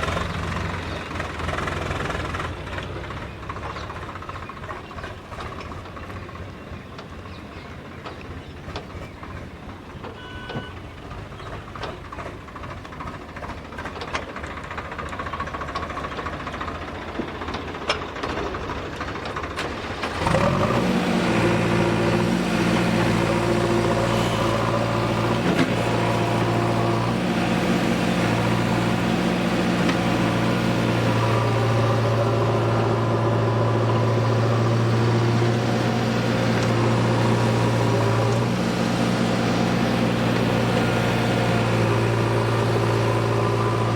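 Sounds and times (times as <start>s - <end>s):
engine knocks: 0.0s - 43.9s
heavy diesel engine rumbling: 0.0s - 43.9s.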